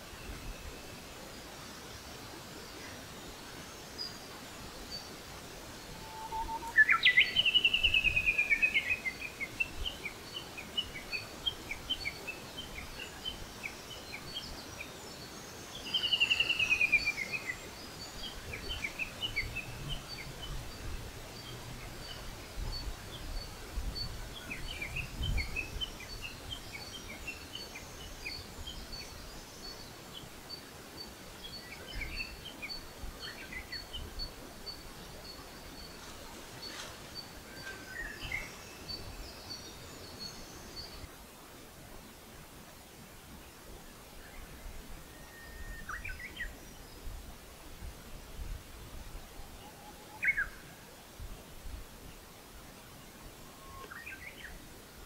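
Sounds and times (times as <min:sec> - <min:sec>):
bird chirps: 0:05.9 - 0:14.4.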